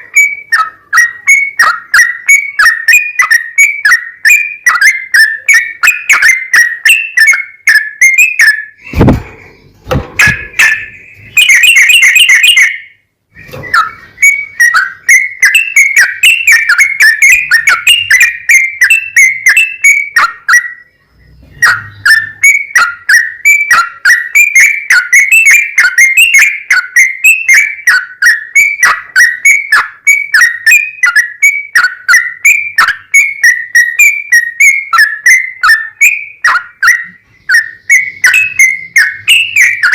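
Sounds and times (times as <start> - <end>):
bird whistled chirps: 0.0 - 39.9
dull thumps: 8.8 - 10.8.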